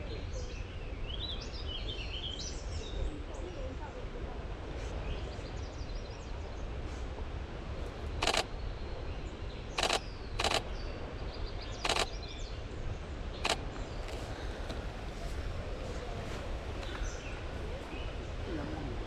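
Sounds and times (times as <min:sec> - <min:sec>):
camera shutter bursts: 0:08.2 - 0:08.5, 0:09.8 - 0:10.6, 0:11.8 - 0:12.2
faint bird chirps: 0:08.2 - 0:12.6, 0:13.3 - 0:14.6.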